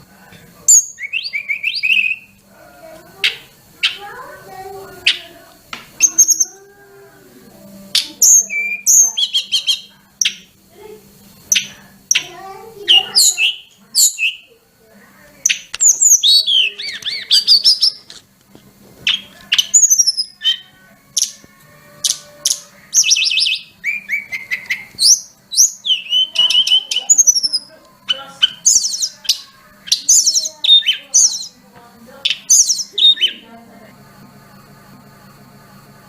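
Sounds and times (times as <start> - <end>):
faint low hum: 0.0 - 36.0
songbird whistling and trilling: 0.7 - 2.4, 6.0 - 6.6, 8.0 - 10.5, 11.5 - 14.5, 15.4 - 18.1, 19.1 - 31.6, 32.2 - 33.5.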